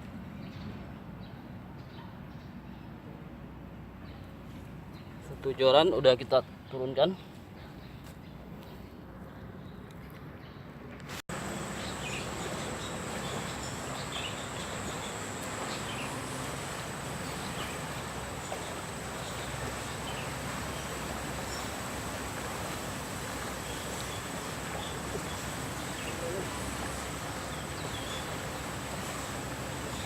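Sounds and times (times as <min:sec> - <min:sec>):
insects trilling: 0:11.3 - 0:30.0.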